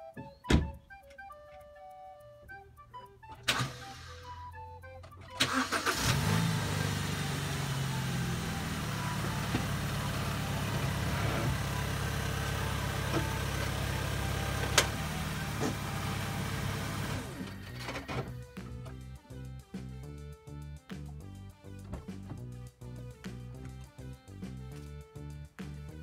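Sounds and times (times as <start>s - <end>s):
car engine idling: 5.0s - 18.5s.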